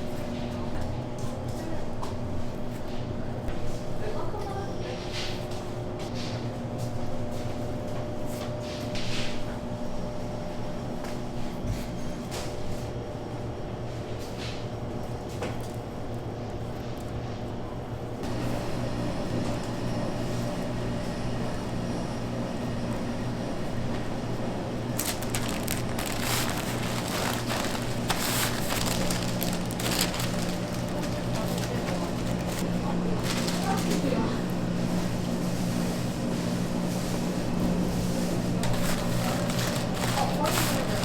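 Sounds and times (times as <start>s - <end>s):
steady machine hum: 17.9s - 35.5s
crackling and clicking from handling: 25.0s - 34.1s.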